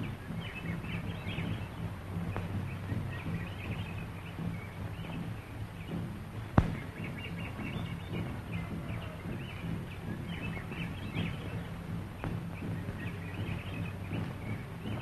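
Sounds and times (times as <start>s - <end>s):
birds chirping: 0.0s - 15.0s
film soundtrack hum and hiss: 0.0s - 15.0s.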